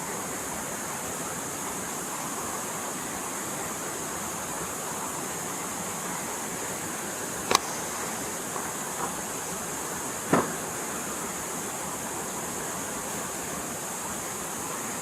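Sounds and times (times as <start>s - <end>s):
forest stream flowing: 0.0s - 15.0s
faint ticks: 7.4s - 9.3s
sharp knocks: 10.3s - 10.7s.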